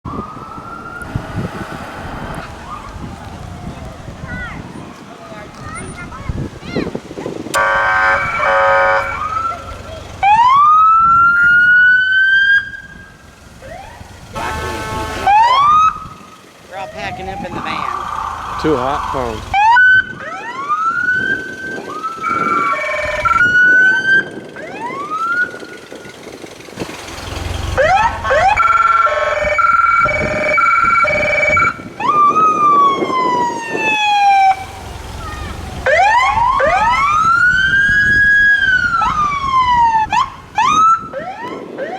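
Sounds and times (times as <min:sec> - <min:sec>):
siren rising in pitch: 0:00.1 - 0:04.7, 0:07.6 - 0:26.1, 0:27.8 - 0:41.9
low engine rumble: 0:00.1 - 0:40.9
vehicle horn blast: 0:07.6 - 0:09.2, 0:14.4 - 0:15.6.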